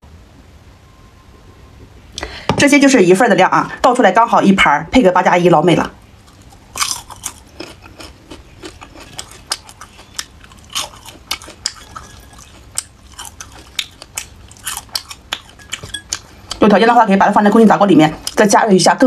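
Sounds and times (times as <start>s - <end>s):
crunchy chewing: 6.2s - 16.6s.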